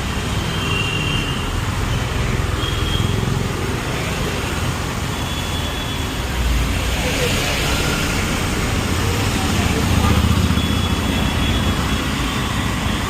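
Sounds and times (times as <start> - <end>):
traffic passing: 0.0 - 13.0.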